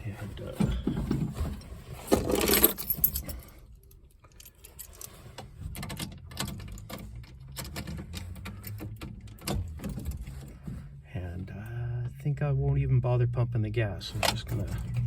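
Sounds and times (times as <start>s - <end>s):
car keys jingling: 1.4s - 10.7s, 14.1s - 15.0s.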